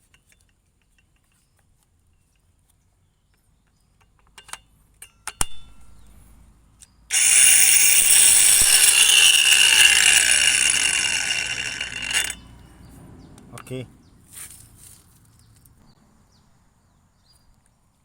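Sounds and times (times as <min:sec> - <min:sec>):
angle grinder whining: 0:07.1 - 0:12.6.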